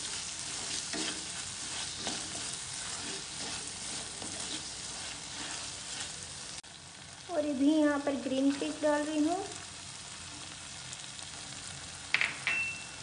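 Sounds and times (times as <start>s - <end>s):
spatula scraping a pan: 0.0s - 6.6s, 8.4s - 8.8s
onions sizzling in hot oil: 0.0s - 13.0s.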